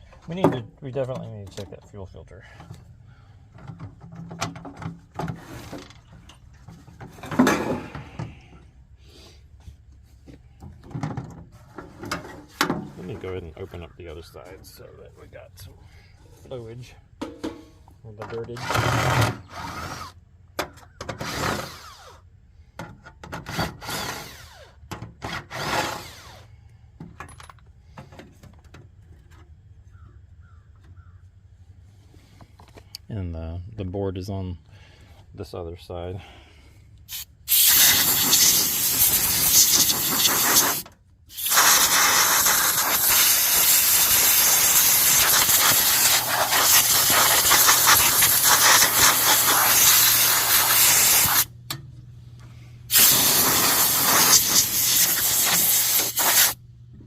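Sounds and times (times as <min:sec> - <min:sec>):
light handling noises: 0:00.0 - 0:02.9.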